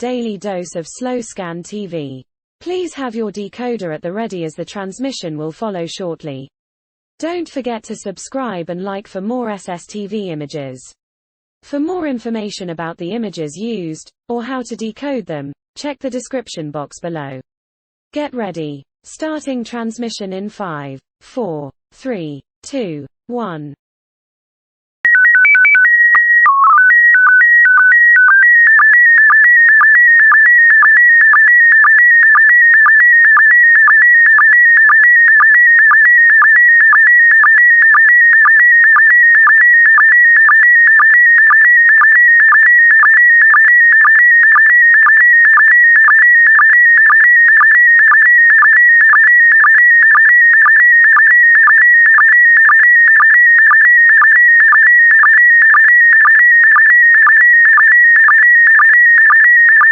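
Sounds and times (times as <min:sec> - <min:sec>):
electronic tone jumping pitches: 0:25.1 - 0:53.8.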